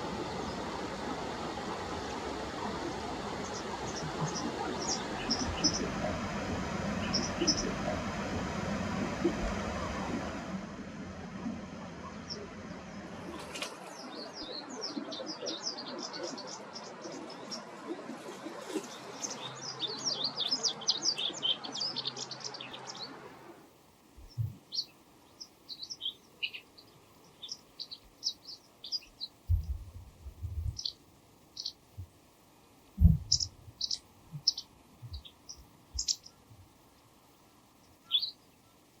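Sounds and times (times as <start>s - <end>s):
background noise: 0.0s - 39.0s
bird chirping: 2.8s - 6.2s, 6.9s - 8.1s, 13.2s - 23.2s, 24.2s - 29.8s, 30.4s - 31.8s, 33.0s - 36.5s, 37.8s - 38.9s
low thumps: 33.0s - 33.4s.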